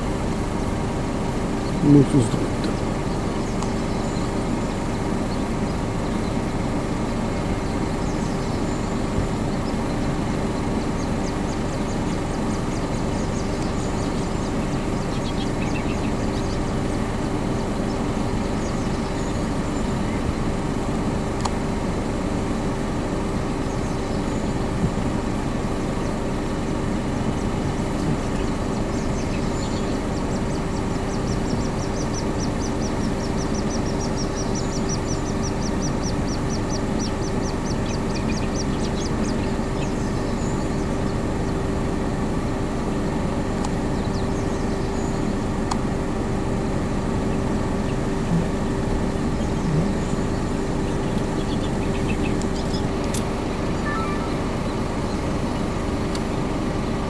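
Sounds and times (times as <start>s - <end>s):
constant hum: 0.0s - 57.0s
high thin peeps: 53.8s - 54.5s.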